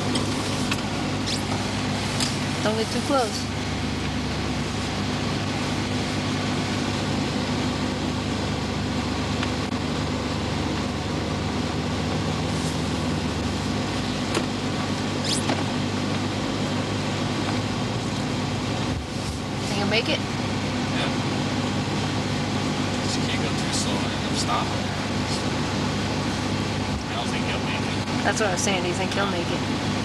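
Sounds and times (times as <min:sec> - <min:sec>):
vehicle engine humming: 0:00.0 - 0:30.0.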